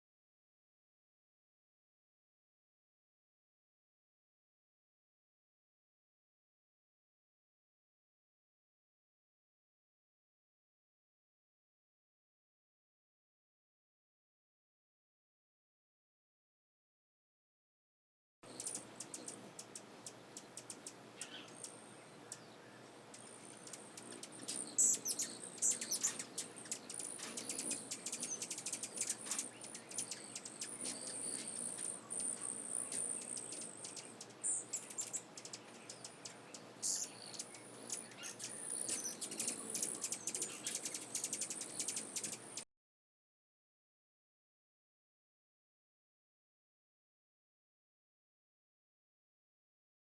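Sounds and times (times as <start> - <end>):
birds chirping: 18.4 - 42.6
high bird trill: 18.5 - 42.6.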